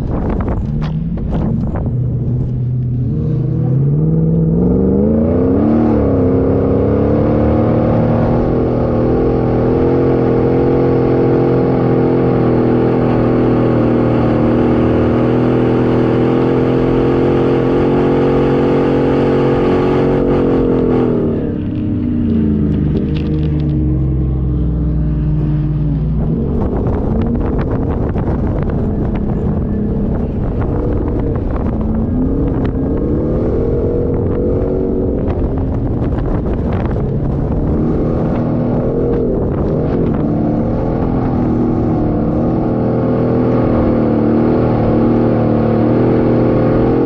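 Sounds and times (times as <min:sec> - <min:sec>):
engine revving at high revs: 0:03.0 - 0:21.7.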